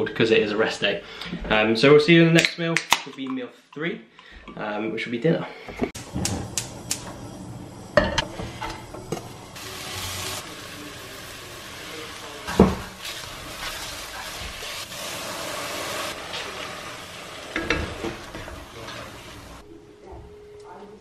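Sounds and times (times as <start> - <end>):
onion and rice sizzling in pan: 6.0 - 19.6.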